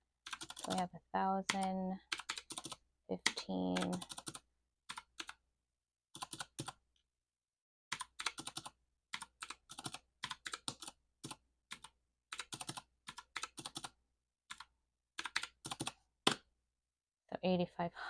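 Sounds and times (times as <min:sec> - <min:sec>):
calculator buttons tapping: 0:01.5 - 0:05.3.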